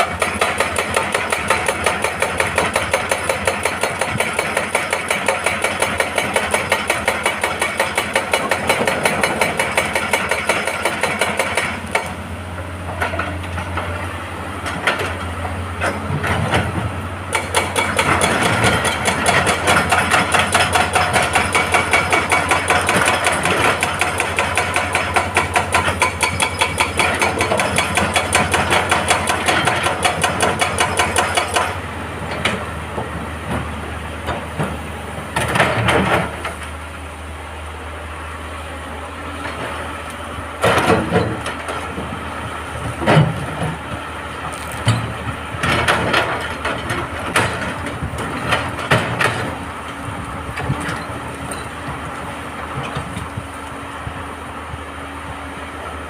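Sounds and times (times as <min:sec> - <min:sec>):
hydraulic breaker hammering rock: 0:00.0 - 0:12.2, 0:15.8 - 0:32.6, 0:44.5 - 0:49.6
excavator diesel engine running: 0:00.0 - 0:56.0.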